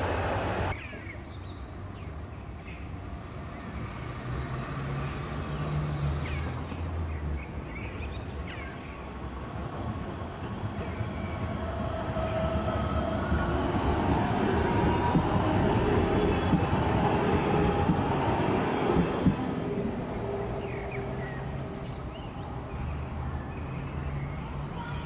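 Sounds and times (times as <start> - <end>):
tram rumbling on rails: 0.0 - 0.8, 3.0 - 25.0
rising whine: 10.6 - 23.6.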